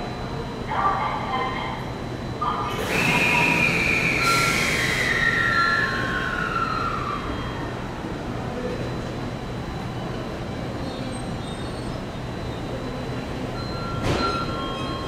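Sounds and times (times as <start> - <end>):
electric train whine: 1.8 - 15.0.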